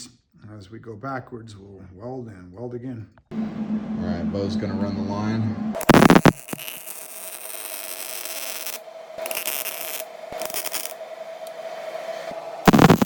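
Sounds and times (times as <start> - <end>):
constant hum: 3.3 - 13.0
welder hissing crackle: 5.8 - 13.0.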